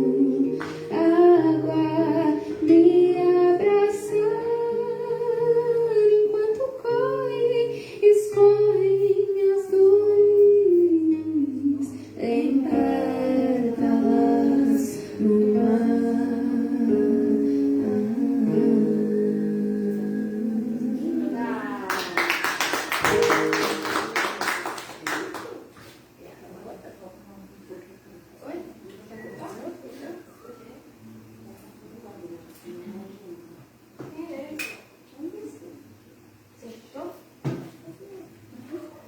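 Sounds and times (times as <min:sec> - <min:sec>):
person singing slow song: 0:00.0 - 0:21.4
guitar: 0:00.0 - 0:22.0, 0:23.0 - 0:24.5.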